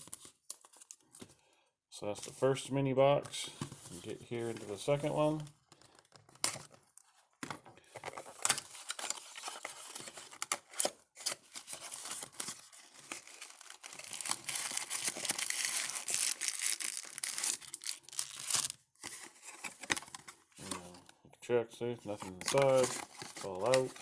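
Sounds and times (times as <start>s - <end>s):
packaging tearing and crinkling: 8.2s - 20.9s, 22.2s - 24.0s.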